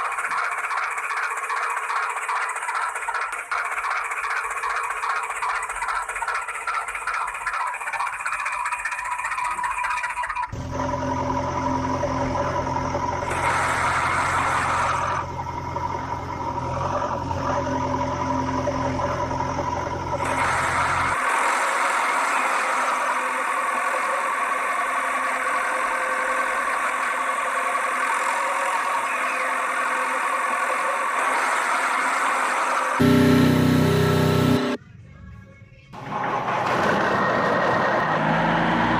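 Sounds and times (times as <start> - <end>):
rattling mechanical whir: 0.0 - 21.4, 33.0 - 34.8
steady engine-like running noise: 0.0 - 35.2
low engine hum: 10.6 - 21.2, 33.0 - 35.2.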